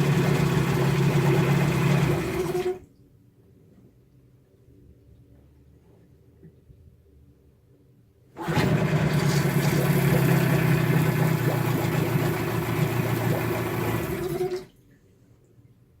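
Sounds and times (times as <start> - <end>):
outboard motor running: 0.0 - 2.8, 8.4 - 14.7.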